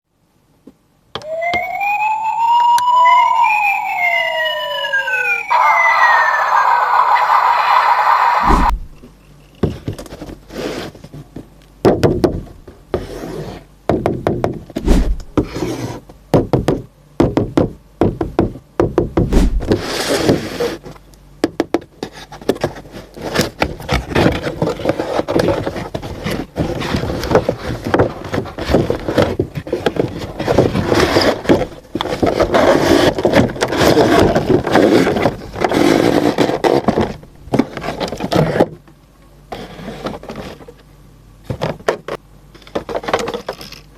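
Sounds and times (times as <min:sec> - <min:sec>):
knocks and taps on box: 0:16.3 - 0:19.4
packaging scraping and rustling: 0:22.0 - 0:38.8.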